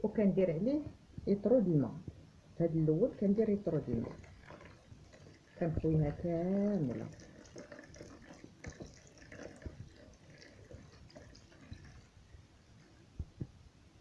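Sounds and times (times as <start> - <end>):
water splashing into a bowl: 3.4 - 12.2.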